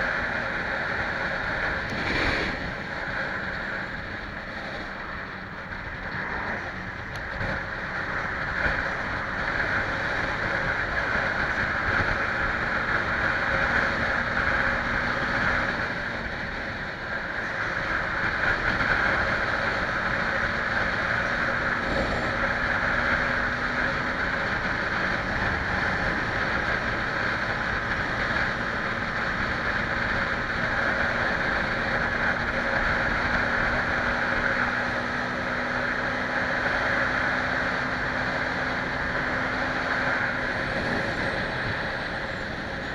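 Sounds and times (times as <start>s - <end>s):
motorcycle engine running: 0.0s - 42.9s
wind rushing over microphone: 0.0s - 42.9s.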